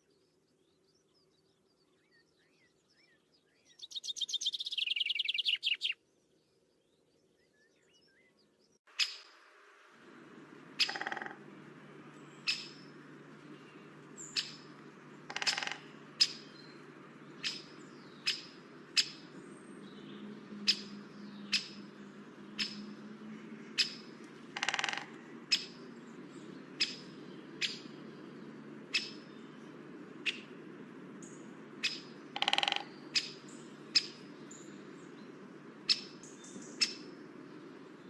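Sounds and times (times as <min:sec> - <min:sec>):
bird calling: 0:02.5 - 0:06.0, 0:07.7 - 0:09.4, 0:10.0 - 0:38.0
low hum: 0:09.2 - 0:38.0.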